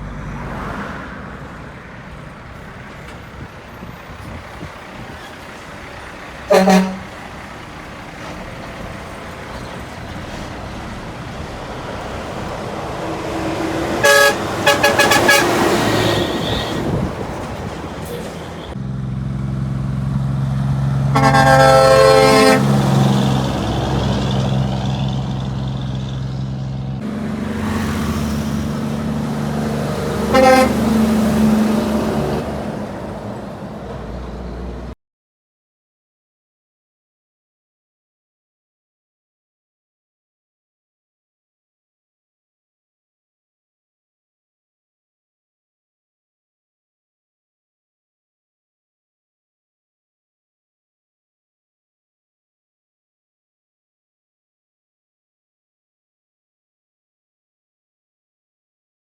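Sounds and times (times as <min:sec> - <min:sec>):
traffic engine and tyre noise: 0:00.0 - 0:35.0
truck engine drone: 0:00.0 - 0:35.0
truck horn: 0:04.4 - 0:11.3, 0:12.1 - 0:18.8, 0:20.8 - 0:26.0, 0:27.0 - 0:33.1.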